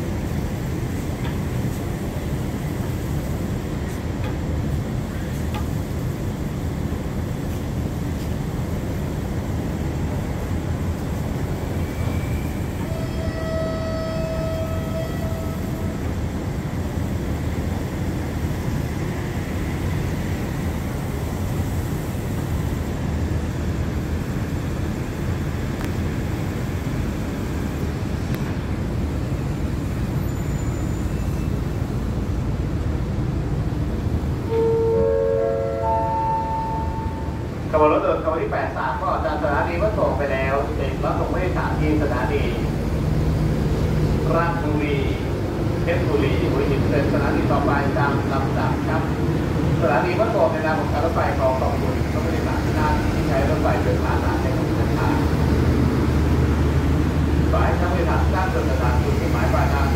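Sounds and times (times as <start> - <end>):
train rumbling: 0.0 - 59.9
pitched tone: 34.5 - 37.4.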